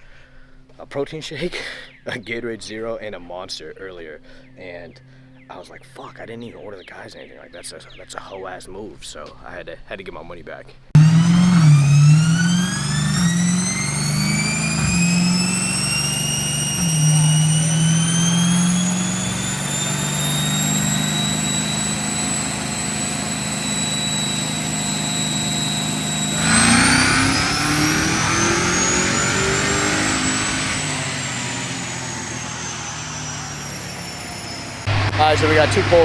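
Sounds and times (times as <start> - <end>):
engine revving on a dyno: 11.0 - 36.0.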